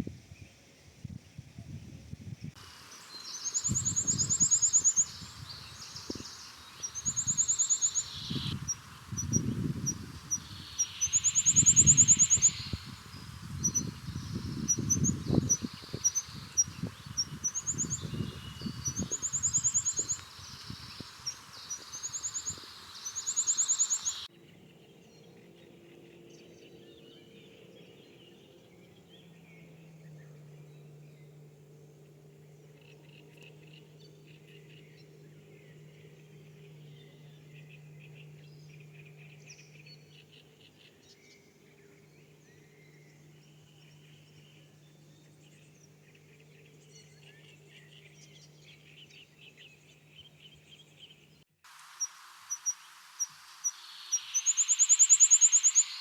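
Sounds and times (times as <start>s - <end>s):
faint low steady hum: 0.0s - 51.4s
bird trilling and chirping: 3.0s - 24.3s.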